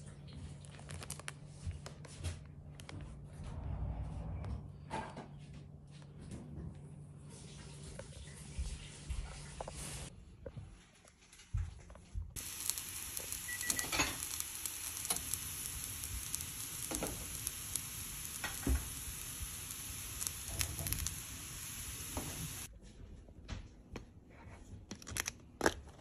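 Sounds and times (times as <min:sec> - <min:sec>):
chicken sizzling and crackling in pan: 0:12.4 - 0:22.7.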